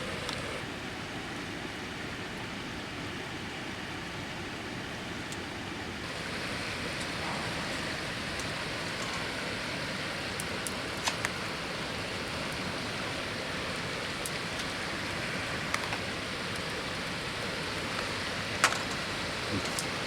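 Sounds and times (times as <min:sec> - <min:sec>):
sharp clicks: 0:00.0 - 0:00.6
river water flowing: 0:00.0 - 0:20.0.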